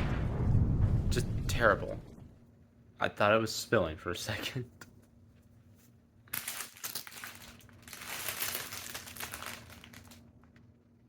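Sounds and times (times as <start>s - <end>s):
packaging crinkling: 6.3s - 10.6s.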